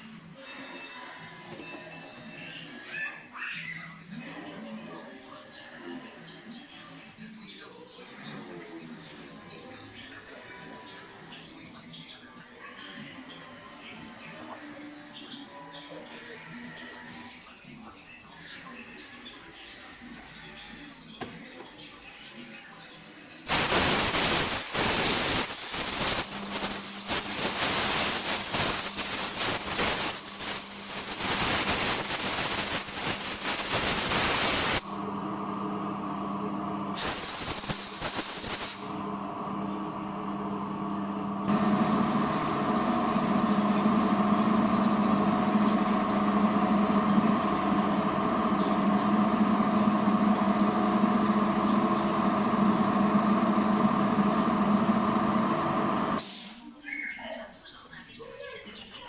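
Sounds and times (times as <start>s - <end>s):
detailing machine hissing: 23.5s - 56.6s
faint motor hum: 34.5s - 56.2s.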